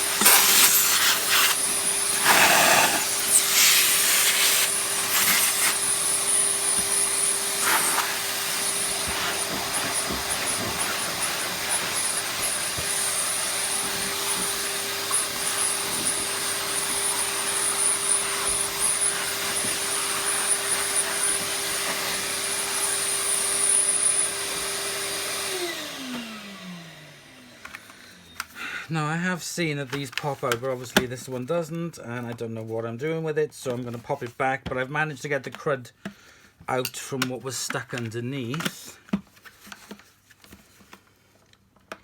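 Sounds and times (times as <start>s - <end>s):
vacuum cleaner running: 0.0s - 28.7s.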